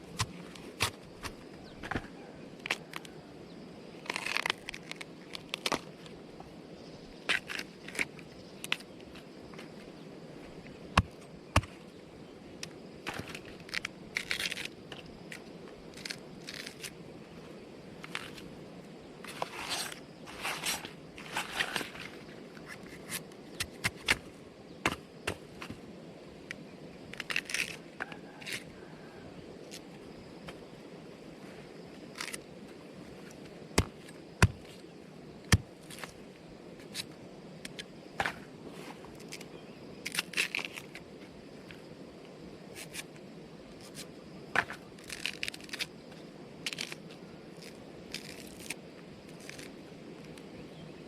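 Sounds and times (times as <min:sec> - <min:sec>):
crackling and crunching: 0:04.0 - 0:06.0, 0:13.1 - 0:16.9, 0:27.1 - 0:28.7, 0:44.6 - 0:46.0, 0:46.6 - 0:50.4.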